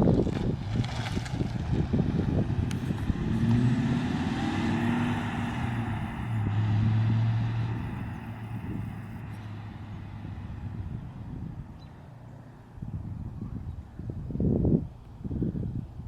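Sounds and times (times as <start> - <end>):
car engine driving by: 0.3 - 12.7.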